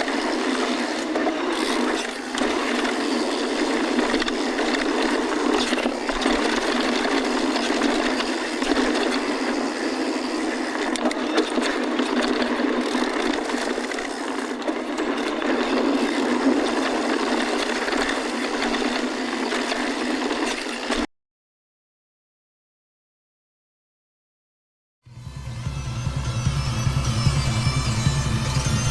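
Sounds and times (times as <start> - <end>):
bike rattling and clicking: 0.0 - 21.0.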